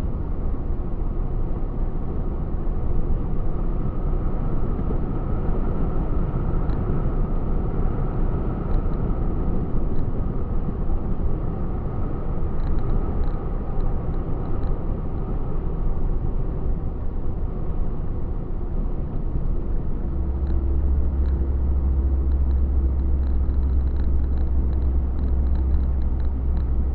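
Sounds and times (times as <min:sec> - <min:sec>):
truck engine and tyre rumble: 0:00.0 - 0:26.9
deep even hum: 0:19.6 - 0:26.9.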